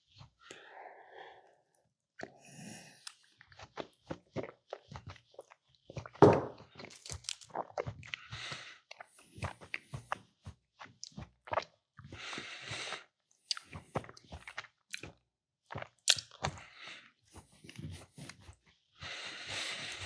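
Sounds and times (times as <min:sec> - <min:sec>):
close chewing mouth sounds: 0:03.0 - 0:16.7.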